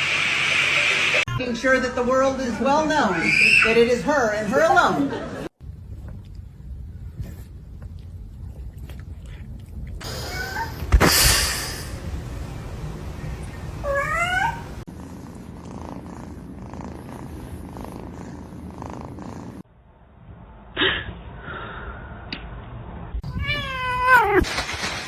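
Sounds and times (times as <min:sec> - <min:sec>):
cat purring: 0:14.8 - 0:19.6
cat meowing: 0:23.2 - 0:24.4.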